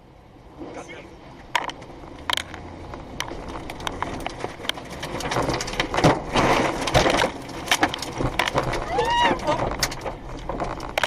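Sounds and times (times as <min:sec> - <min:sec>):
tornado wind and rain: 0:00.0 - 0:11.0
debris clattering: 0:03.3 - 0:11.0.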